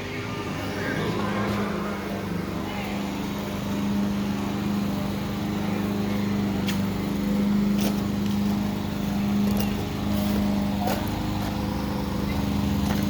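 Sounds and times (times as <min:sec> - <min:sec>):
engine humming steadily: 0:00.0 - 0:13.0.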